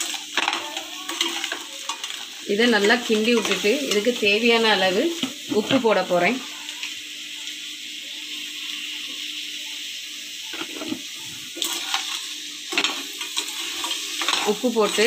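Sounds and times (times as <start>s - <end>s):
food sizzling in hot oil: 0.0s - 15.0s
steel spatula scraping: 11.6s - 15.0s.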